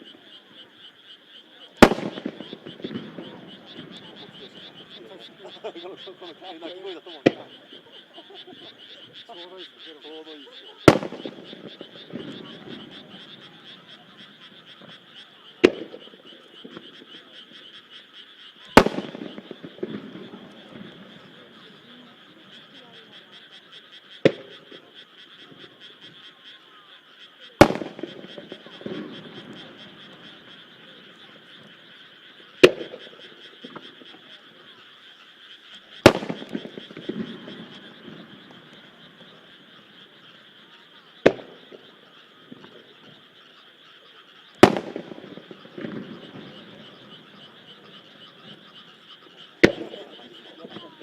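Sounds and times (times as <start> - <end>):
frogs calling: 0.0 - 51.0
firework crackles: 1.8 - 7.5, 10.8 - 15.0, 18.7 - 22.8, 27.6 - 34.3, 35.8 - 40.5, 41.2 - 43.0, 44.5 - 51.0
firework shells bursting: 1.8 - 7.5, 10.8 - 13.4, 18.8 - 21.3, 27.6 - 30.8, 32.6 - 34.1, 36.0 - 39.3, 41.2 - 41.8, 44.6 - 50.8.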